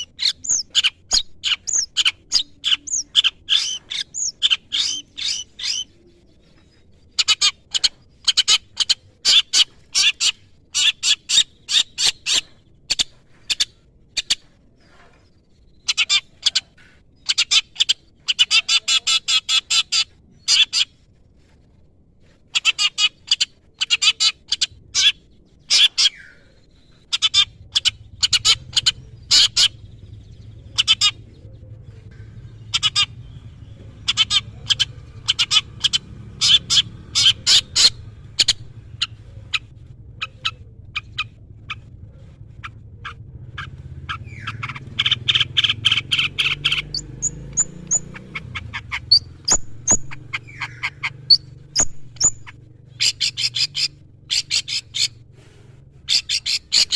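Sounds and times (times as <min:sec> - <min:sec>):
shrike singing sharp calls: 0:00.0 - 0:06.0, 0:22.6 - 0:55.3, 0:56.0 - 0:56.9
bird chattering: 0:00.0 - 0:15.2, 0:15.8 - 0:21.1, 0:22.5 - 0:56.9.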